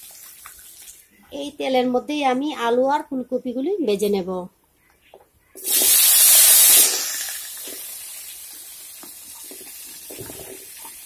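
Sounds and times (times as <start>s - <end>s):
potatoes sizzling in hot oil: 5.6s - 11.0s.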